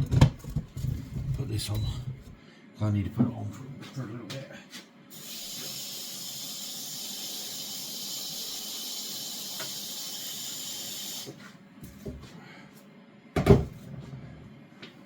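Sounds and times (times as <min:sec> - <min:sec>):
high-pitched hiss: 0:05.2 - 0:11.3.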